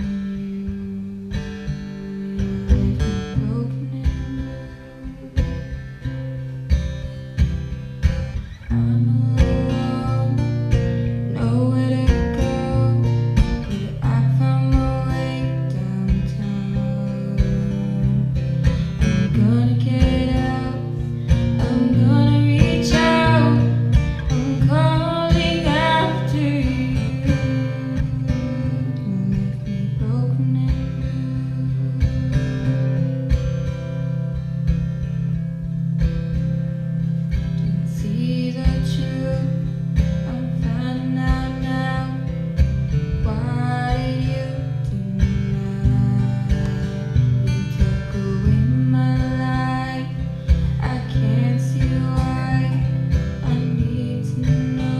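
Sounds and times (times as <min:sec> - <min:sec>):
young woman singing: 0:00.0 - 0:34.4, 0:37.2 - 0:54.9
strummed acoustic guitar: 0:00.0 - 0:54.9.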